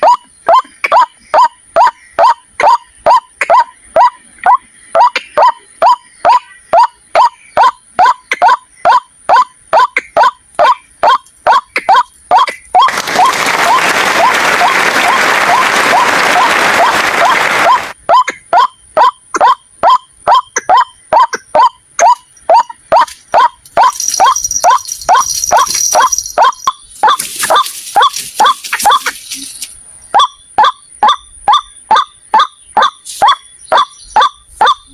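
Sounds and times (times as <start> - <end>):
waterhen calling: 16.4 - 34.9.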